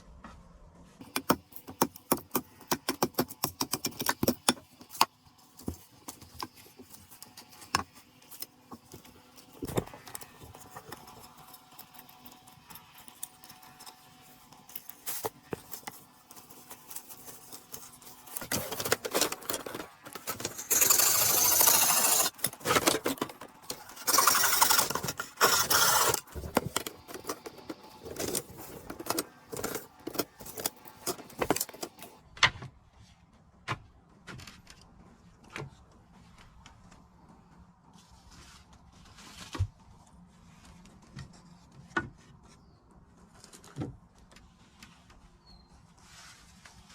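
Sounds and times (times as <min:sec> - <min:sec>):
rustling and scraping: 0:04.6 - 0:32.2, 0:34.2 - 0:46.9
handling clicks and knocks: 0:15.2 - 0:21.0, 0:22.3 - 0:32.2.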